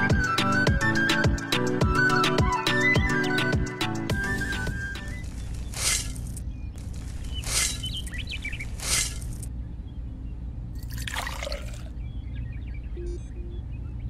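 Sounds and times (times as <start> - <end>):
cement powder sliding off shovel: 8.8 - 9.4
water trickling from metal bucket: 10.8 - 11.9.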